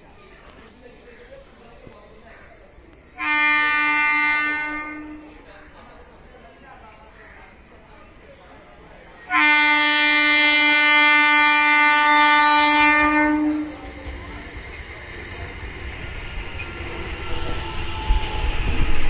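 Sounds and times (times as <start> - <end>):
train horn blast: 3.2 - 5.5, 9.3 - 14.0, 17.2 - 19.0
train wheels rumbling and clattering: 12.2 - 19.0.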